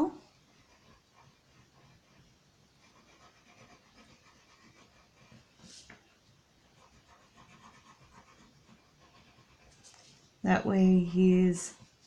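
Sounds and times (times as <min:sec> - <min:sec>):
marker scratching on plastic: 0:00.4 - 0:06.0, 0:06.6 - 0:10.2.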